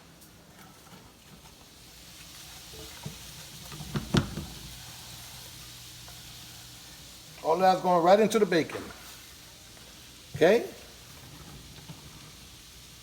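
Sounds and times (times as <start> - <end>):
food sizzling in a frying pan: 0.0 - 13.0
utensil knocking in pan: 3.0 - 4.6.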